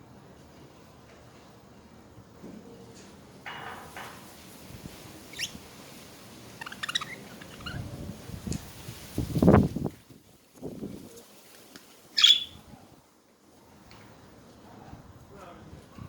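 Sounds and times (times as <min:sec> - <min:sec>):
budgerigars chirping and chattering: 0:05.3 - 0:05.6, 0:06.6 - 0:07.9, 0:12.2 - 0:12.6.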